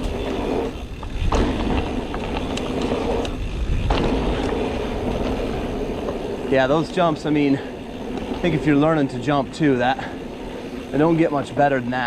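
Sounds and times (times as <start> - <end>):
tyre and wind rumble: 0.0 - 12.0
bike landing knock: 1.1 - 5.4.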